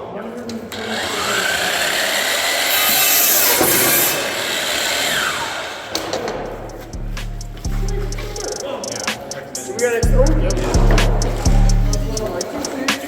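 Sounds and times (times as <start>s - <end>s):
power saw cutting wood: 0.7s - 6.5s.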